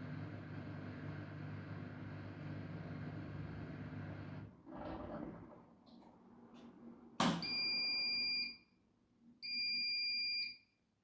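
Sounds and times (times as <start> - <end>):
washing machine long beeps: 7.4 - 8.7, 9.4 - 10.7.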